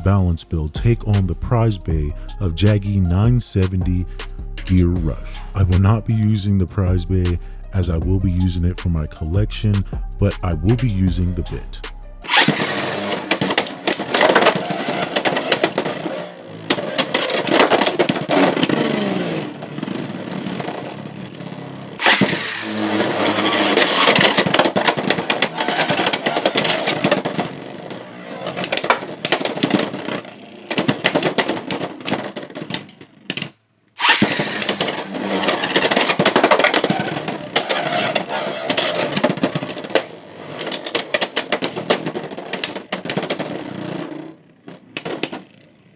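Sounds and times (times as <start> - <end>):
spinning tops clashing in plastic arena: 12.2 - 45.8
spinning top whirr: 12.2 - 45.9.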